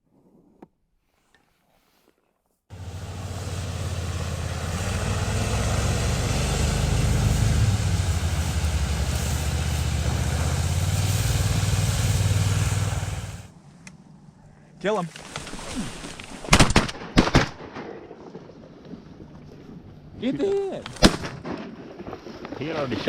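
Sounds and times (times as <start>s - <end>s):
boat engine humming: 2.7s - 13.5s.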